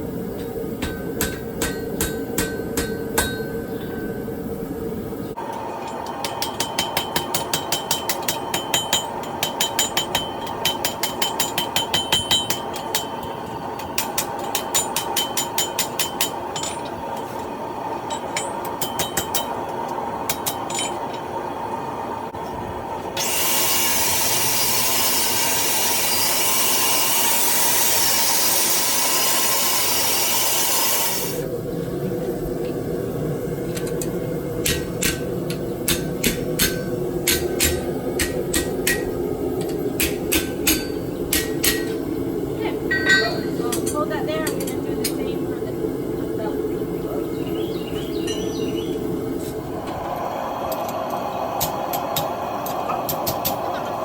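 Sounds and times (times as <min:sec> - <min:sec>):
steady low hum: 0:00.0 - 0:26.2, 0:31.0 - 0:54.0
hammer striking steel on anvil: 0:00.4 - 0:03.8, 0:06.0 - 0:16.9, 0:18.1 - 0:19.6, 0:20.3 - 0:21.0, 0:34.6 - 0:42.0, 0:42.9 - 0:44.8
loud steady hiss: 0:22.9 - 0:33.5.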